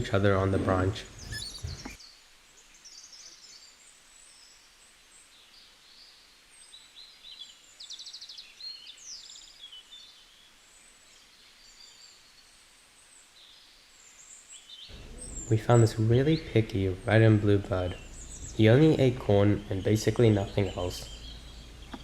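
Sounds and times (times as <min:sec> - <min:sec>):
low background hiss: 0:00.0 - 0:22.0
bird chirps and trills: 0:01.0 - 0:02.1, 0:14.9 - 0:22.0.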